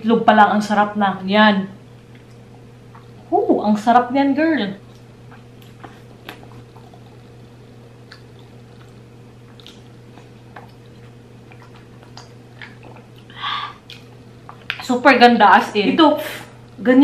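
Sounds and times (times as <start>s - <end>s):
low electrical hum: 0.0s - 17.0s
person chewing food: 2.0s - 3.3s, 4.8s - 14.9s
wet mouth clicks and smacks: 8.0s - 14.9s.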